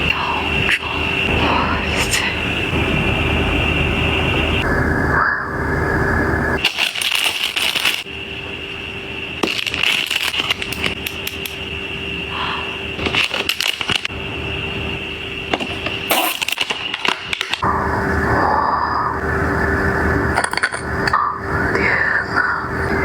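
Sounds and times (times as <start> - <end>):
faint steady tone: 0.0 - 6.7, 7.5 - 16.9
packaging crackling and rustling: 6.6 - 8.1, 9.4 - 11.6, 13.0 - 14.1, 15.5 - 17.6.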